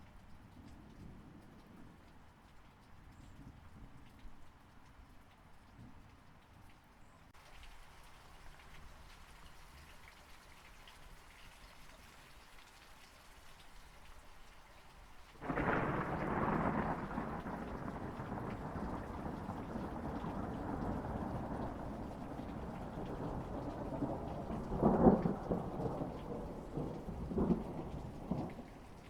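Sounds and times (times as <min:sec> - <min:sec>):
steady rain pattering: 0:00.0 - 0:29.0
thunder clap and rumble: 0:15.4 - 0:29.0.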